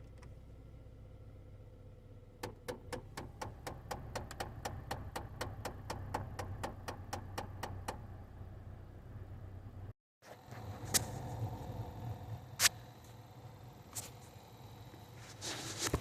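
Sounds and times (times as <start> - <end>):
steady low hum: 0.0 - 16.0
air door actuator clicking: 2.4 - 8.0.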